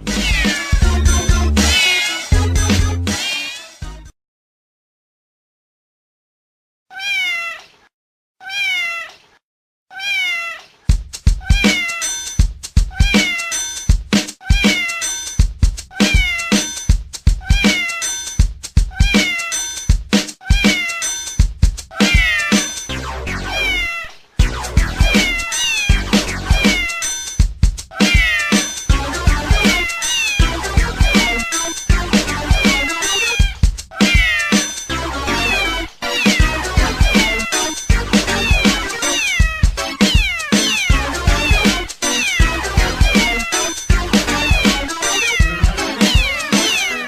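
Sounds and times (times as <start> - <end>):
dance beat with meow samples: 0.0 - 3.4, 10.9 - 47.0
cat meowing: 0.1 - 2.4, 3.2 - 3.8, 6.9 - 10.7, 11.4 - 12.1, 12.9 - 13.6, 14.4 - 15.2, 15.9 - 16.7, 17.4 - 18.2, 18.9 - 19.6, 20.4 - 21.2, 21.9 - 22.8, 23.4 - 24.2, 25.0 - 27.2, 27.9 - 28.8, 29.4 - 31.8, 32.4 - 43.7, 44.3 - 47.0.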